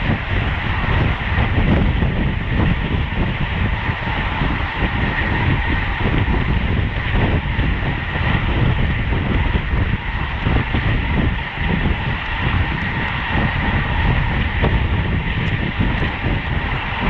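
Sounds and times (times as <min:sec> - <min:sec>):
faint steady whine: 0:00.0 - 0:17.0
tyre and road noise: 0:00.0 - 0:17.0
wind rushing over microphone: 0:00.0 - 0:17.0.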